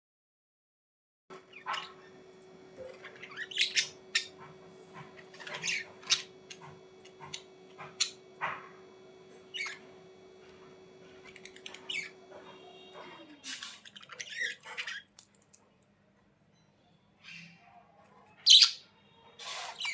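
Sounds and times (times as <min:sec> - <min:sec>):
budgerigars chirping and squawking: 0:01.5 - 0:02.2, 0:02.8 - 0:15.1, 0:18.4 - 0:19.9.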